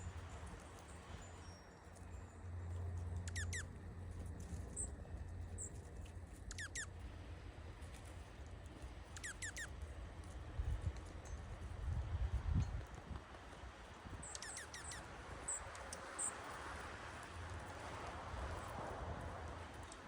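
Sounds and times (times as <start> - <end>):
low wind rumble: 0.0 - 14.4
small birds whistling calls: 3.2 - 3.7, 6.5 - 6.9, 9.2 - 9.7, 14.2 - 16.4.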